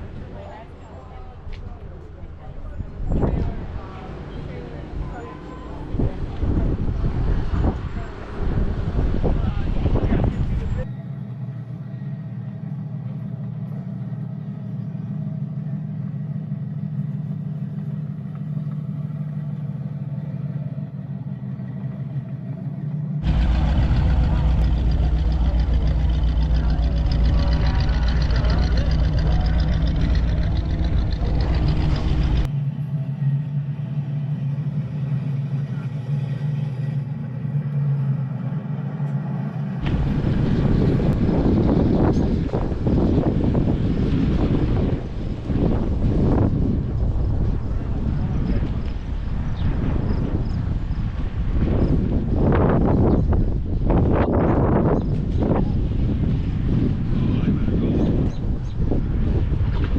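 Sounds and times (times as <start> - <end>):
wind buffeting microphone: 0.0 - 10.9, 23.2 - 32.5, 39.8 - 59.9
car engine idling: 10.2 - 49.4
steady low hum: 10.9 - 51.1.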